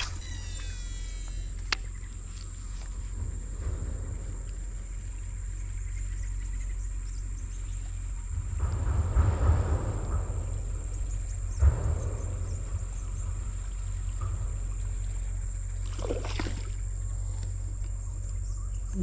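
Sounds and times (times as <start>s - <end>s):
high-pitched insect drone: 0.0s - 2.9s
wind rumble on microphone: 0.0s - 19.0s.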